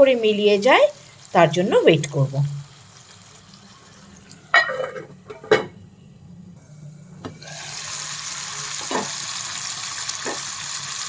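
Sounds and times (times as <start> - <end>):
food sizzling in oil: 0.0 - 4.9, 7.4 - 11.0.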